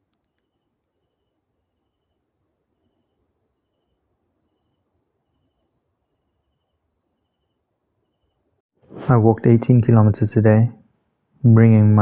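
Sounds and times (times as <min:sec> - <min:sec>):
crickets chirping: 0:00.0 - 0:08.4.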